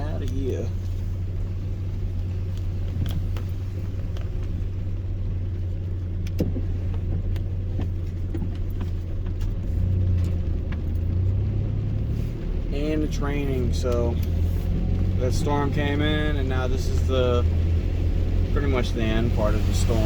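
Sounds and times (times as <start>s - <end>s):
vehicle rumble from inside cab: 0.0s - 20.0s
light ticks: 2.1s - 5.0s, 13.8s - 16.0s.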